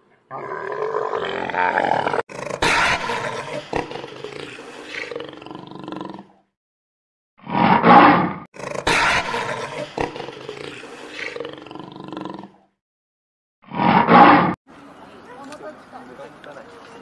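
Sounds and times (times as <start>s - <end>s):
big cat roaring: 0.3s - 6.4s, 7.5s - 12.6s, 13.7s - 14.6s.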